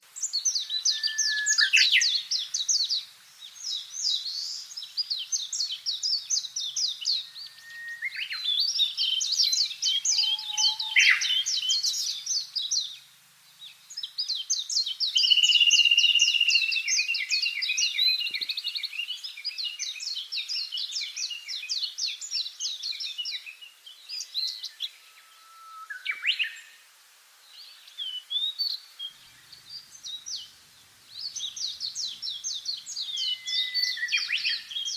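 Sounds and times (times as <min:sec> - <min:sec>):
songbirds singing: 0:00.0 - 0:34.9
swooping whistles: 0:00.9 - 0:02.1, 0:07.2 - 0:08.5, 0:09.9 - 0:11.9, 0:33.2 - 0:34.7.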